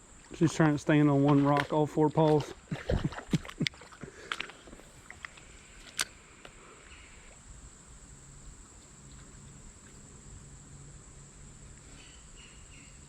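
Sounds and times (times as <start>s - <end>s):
high-pitched insect drone: 5.5s - 13.0s.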